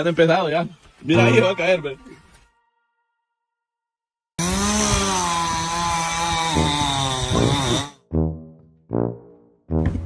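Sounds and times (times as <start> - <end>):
chainsaw running at high revs: 4.4 - 8.0.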